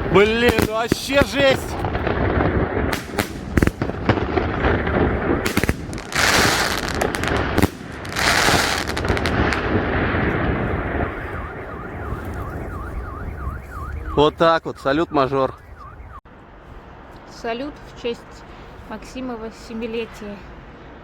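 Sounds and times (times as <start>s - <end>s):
firework hissing crackle: 0.0s - 12.4s
firework launch thumps: 0.2s - 12.4s
firework shell bursts: 2.9s - 9.8s
car alarm wailing: 10.7s - 16.2s.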